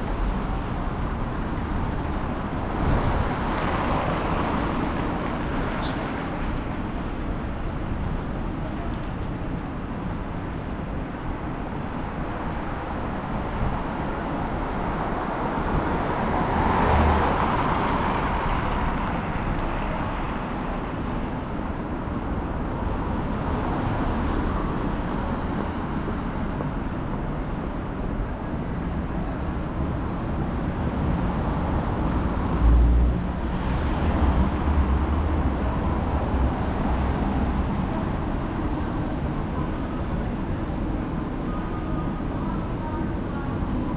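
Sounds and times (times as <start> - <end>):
cars passing: 0.0 - 8.1, 12.9 - 21.6, 28.6 - 41.4.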